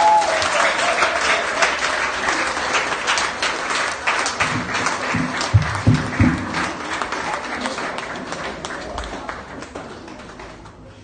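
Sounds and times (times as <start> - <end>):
crowd applauding: 0.0 - 10.9
low thumps: 4.4 - 6.8.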